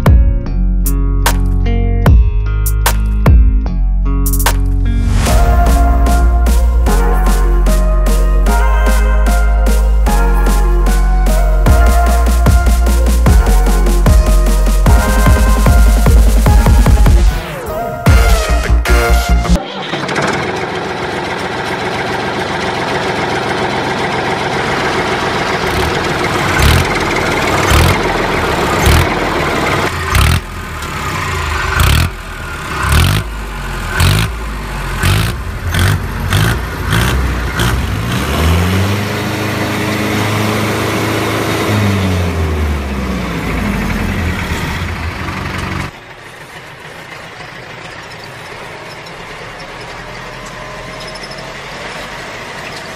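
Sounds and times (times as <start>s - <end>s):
engine revving: 4.4s - 52.9s.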